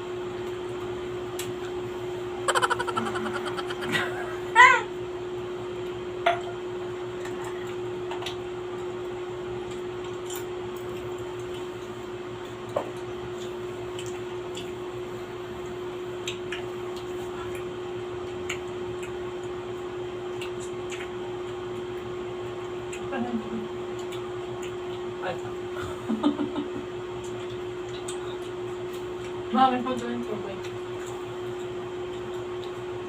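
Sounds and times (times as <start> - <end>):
steady hum: 1.9 - 4.9.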